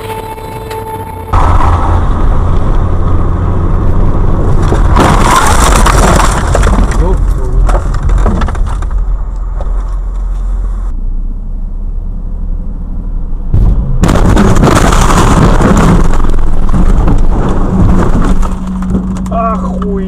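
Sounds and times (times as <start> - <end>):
car driving rushing rumble: 0.0 - 20.0.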